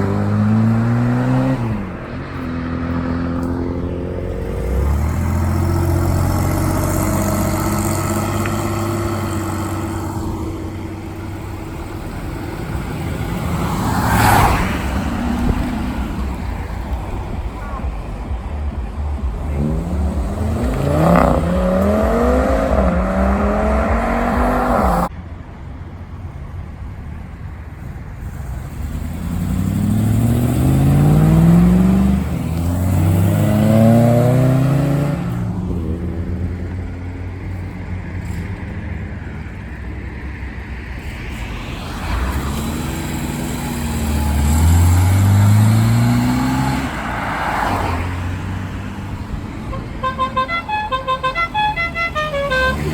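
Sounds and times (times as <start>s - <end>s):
car engines accelerating: 0.0s - 52.9s
steady low rumble: 15.0s - 25.1s.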